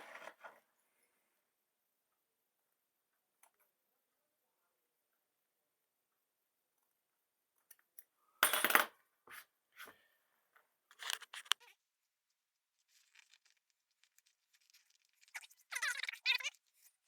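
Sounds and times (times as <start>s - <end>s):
faint crackling: 10.9s - 17.0s.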